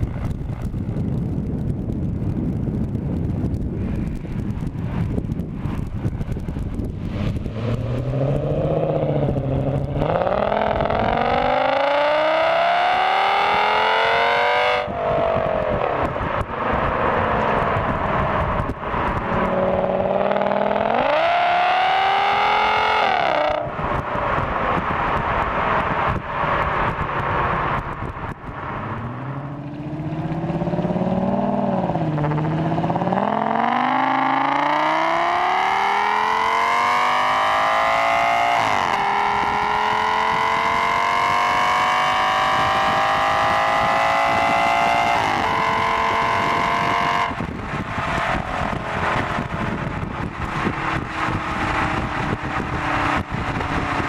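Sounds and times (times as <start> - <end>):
car engine accelerating: 0.0 - 54.0.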